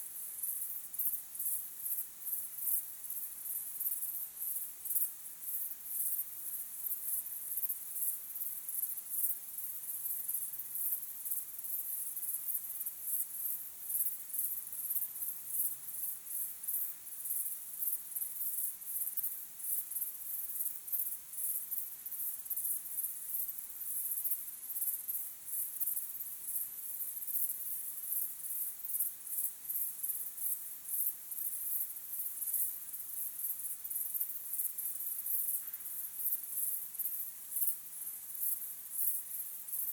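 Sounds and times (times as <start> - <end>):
crickets chirping: 0.1 - 39.9.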